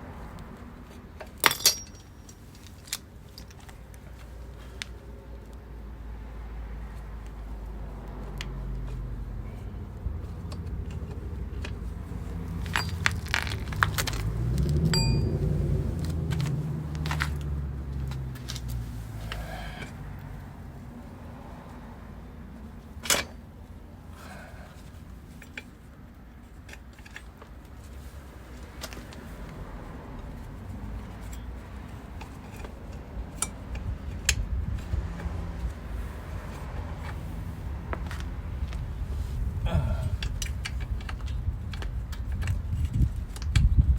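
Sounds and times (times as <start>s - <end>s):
metal tools clinking and knocking: 1.2s - 3.8s, 12.5s - 15.4s
metallic clinks of hand tools: 1.4s - 2.4s, 12.7s - 13.2s
steady low rumble: 1.8s - 25.3s, 29.1s - 43.9s
metallic ping: 14.9s - 15.3s.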